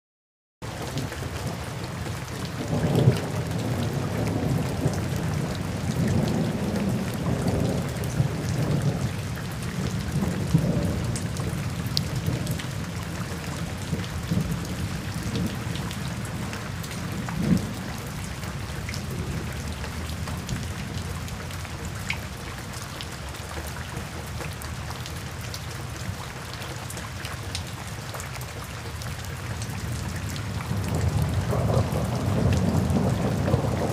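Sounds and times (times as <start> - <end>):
steady rain: 0.6 - 33.9
rolling thunder: 2.6 - 21.1, 30.3 - 33.9
sharp thunder crack: 30.7 - 33.9.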